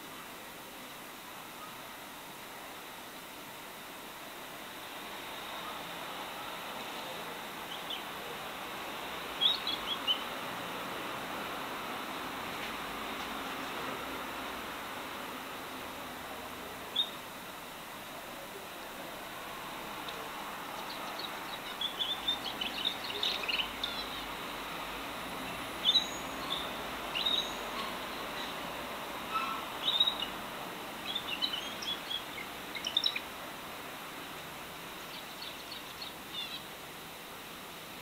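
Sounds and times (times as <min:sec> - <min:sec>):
steady background hiss: 0:00.0 - 0:38.0
pet birds chirping: 0:20.8 - 0:24.3, 0:25.8 - 0:28.5, 0:29.3 - 0:30.4, 0:31.1 - 0:33.3, 0:35.1 - 0:36.7.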